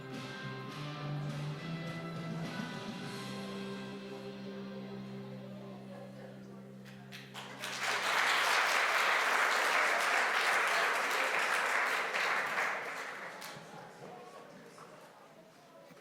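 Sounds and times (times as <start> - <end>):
music: 0.0 - 10.1
audience applauding: 7.1 - 14.2.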